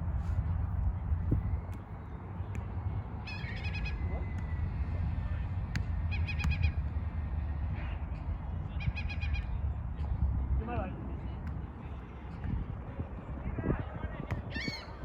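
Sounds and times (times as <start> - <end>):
wind buffeting microphone: 0.0 - 5.8, 12.2 - 15.0.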